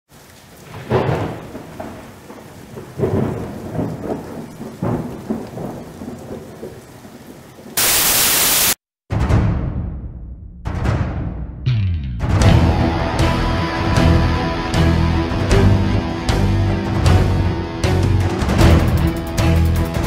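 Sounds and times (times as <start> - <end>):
steady rain: 0.1 - 8.8, 12.6 - 20.0
thunder rumbling: 0.6 - 8.8
loud static burst: 7.8 - 8.8.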